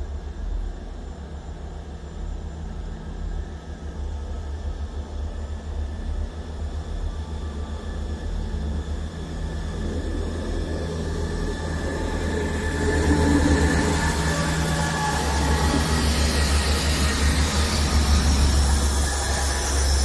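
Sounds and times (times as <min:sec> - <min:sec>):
diesel train rumbling: 0:06.3 - 0:20.0.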